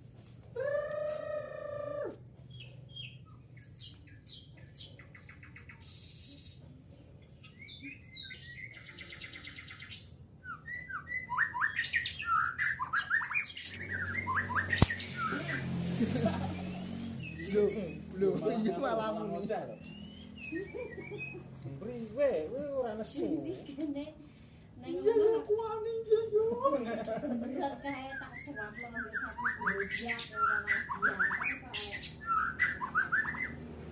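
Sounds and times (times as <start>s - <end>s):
bird calling and singing: 0.6s - 23.1s, 27.7s - 33.9s
sharp click: 14.7s - 15.2s.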